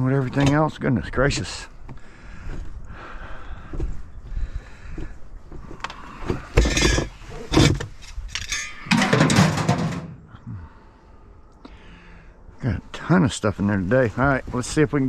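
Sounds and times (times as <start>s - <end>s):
scrap metal clanking: 6.4s - 10.2s
metal clatter and scrape: 6.5s - 10.2s.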